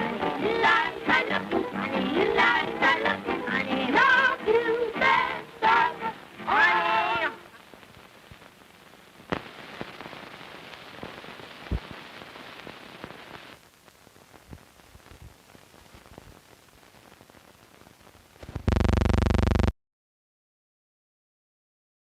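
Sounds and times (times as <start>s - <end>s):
film soundtrack crackle and hiss: 0.0s - 19.7s
loud buzzing tone: 18.6s - 19.7s.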